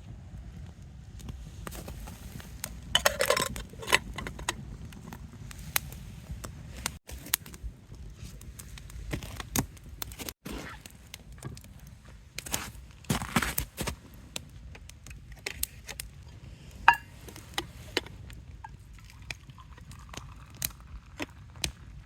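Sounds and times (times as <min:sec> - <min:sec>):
campfire crackling and popping: 0:00.2 - 0:22.0
cookware clattering: 0:03.0 - 0:04.4, 0:16.9 - 0:17.1.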